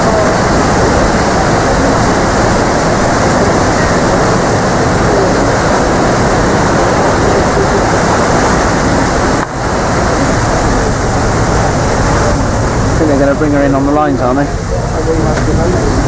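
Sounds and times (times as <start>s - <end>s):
paddle wheels churning water: 0.0s - 16.0s.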